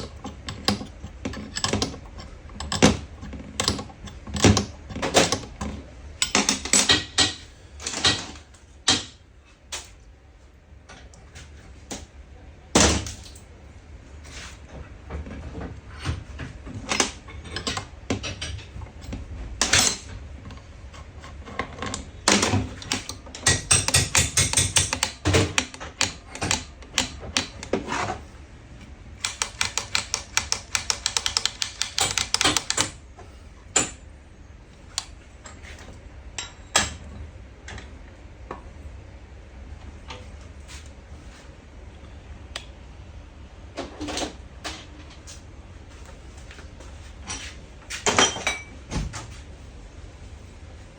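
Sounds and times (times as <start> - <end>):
tools knocking on a workbench: 23.5 - 27.6
rapid clicking: 29.2 - 33.0.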